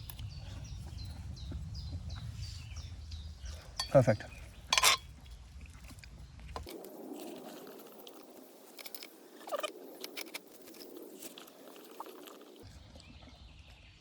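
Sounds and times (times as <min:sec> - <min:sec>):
chewing: 0:03.8 - 0:13.8
utensil clicks and scrapes: 0:04.7 - 0:05.1, 0:05.9 - 0:12.7.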